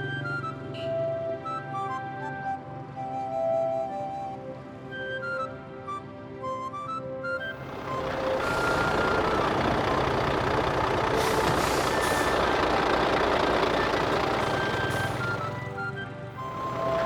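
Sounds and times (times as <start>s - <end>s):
vehicle noise: 7.4s - 17.0s.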